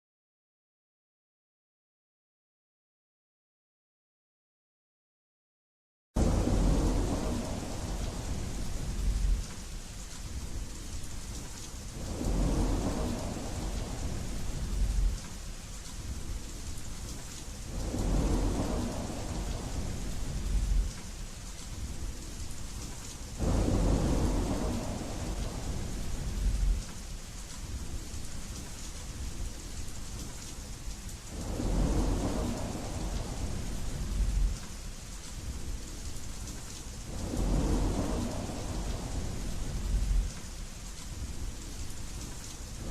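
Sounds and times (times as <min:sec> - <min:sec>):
rain hissing: 0:06.2 - 0:42.9
rolling thunder: 0:06.2 - 0:42.9.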